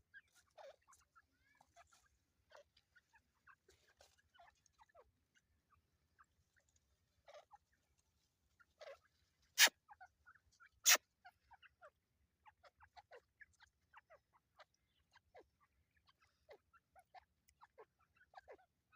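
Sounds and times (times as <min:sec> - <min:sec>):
partridges chirping: 0:08.8 - 0:09.8, 0:10.7 - 0:11.0.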